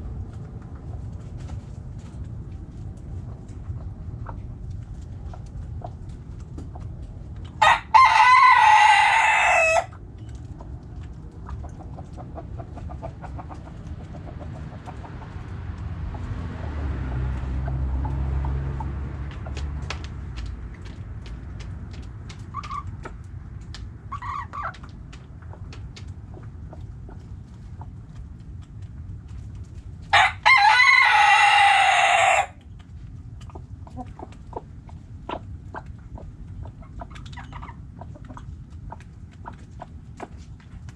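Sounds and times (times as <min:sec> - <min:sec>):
low rumble: 0:00.0 - 0:07.6, 0:09.9 - 0:24.2
hens clucking softly: 0:03.0 - 0:16.3, 0:22.0 - 0:23.2, 0:24.1 - 0:29.5, 0:30.5 - 0:40.9
rooster crowing: 0:07.6 - 0:09.9, 0:30.1 - 0:32.6.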